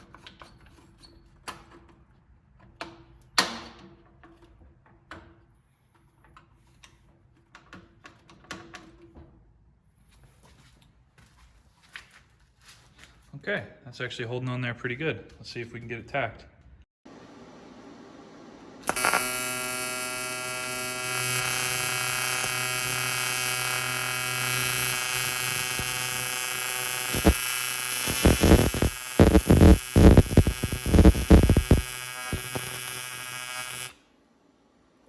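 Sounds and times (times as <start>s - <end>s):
welding arc buzzing: 18.8s - 34.0s
loud irregular cracks and pops: 18.9s - 33.9s.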